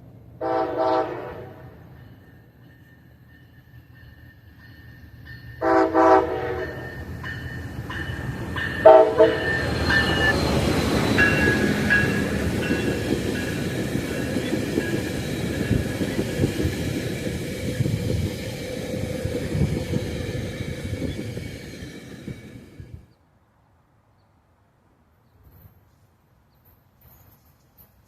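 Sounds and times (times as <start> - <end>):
train passing rumble: 0.0 - 23.2
train horn blasts: 0.4 - 1.8, 5.6 - 7.1, 8.8 - 10.2
wheels clacking over rails: 6.8 - 23.0.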